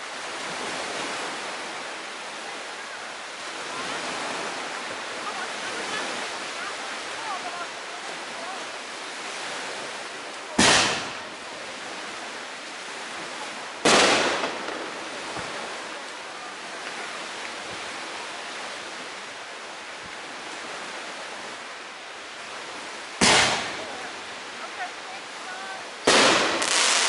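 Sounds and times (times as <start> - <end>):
background hiss: 0.0 - 27.0
loud firework bangs: 10.6 - 11.4, 13.8 - 15.5, 23.2 - 23.9, 26.0 - 27.0.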